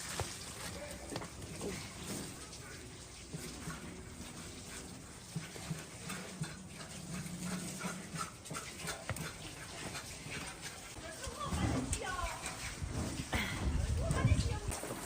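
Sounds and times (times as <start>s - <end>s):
animal breathing hard: 4.3s - 11.0s.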